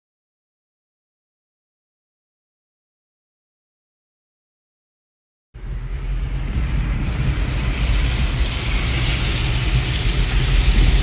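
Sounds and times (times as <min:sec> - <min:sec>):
car road noise from inside: 0:05.6 - 0:11.0
wind noise: 0:05.6 - 0:11.0.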